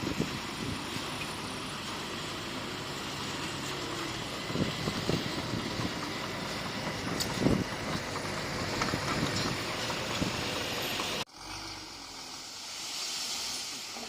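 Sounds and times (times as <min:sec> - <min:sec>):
bulldozer engine running: 0:00.0 - 0:12.6
steady hiss: 0:12.2 - 0:14.0.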